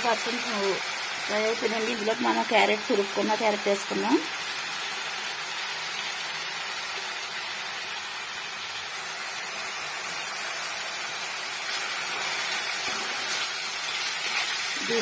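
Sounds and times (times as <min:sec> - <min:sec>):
vegetables sizzling in hot oil: 0:00.0 - 0:15.0
spatula stirring in pan: 0:11.4 - 0:15.0.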